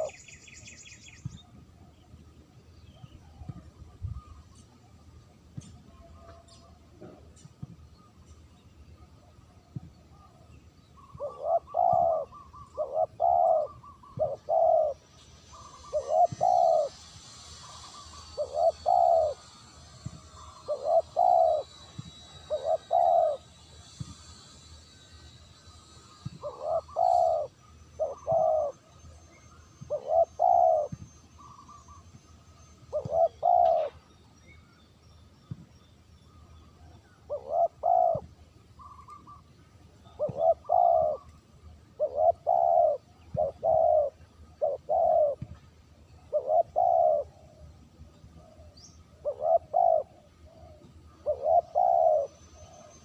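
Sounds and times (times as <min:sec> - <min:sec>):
dove cooing: 0:00.0 - 0:00.2, 0:11.0 - 0:19.6, 0:20.2 - 0:24.6, 0:26.1 - 0:28.9, 0:29.8 - 0:32.1, 0:32.9 - 0:34.0, 0:37.3 - 0:39.4, 0:40.0 - 0:41.4, 0:42.0 - 0:45.5, 0:46.3 - 0:47.6, 0:48.4 - 0:52.9.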